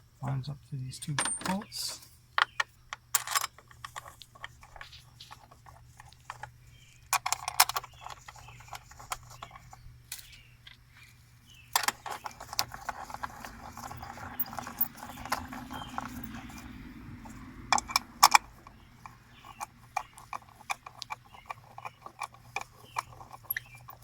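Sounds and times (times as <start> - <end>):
plastic cover rattling and scraping: 11.8 - 16.6.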